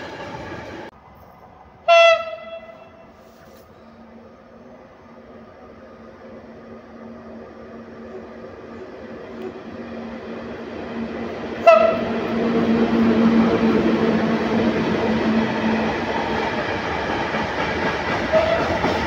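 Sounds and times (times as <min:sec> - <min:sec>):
electric locomotive hum: 0:00.0 - 0:19.0
wagons rumbling on rails: 0:00.0 - 0:19.0
train horn blast: 0:01.8 - 0:03.4, 0:11.6 - 0:12.3, 0:18.3 - 0:18.8.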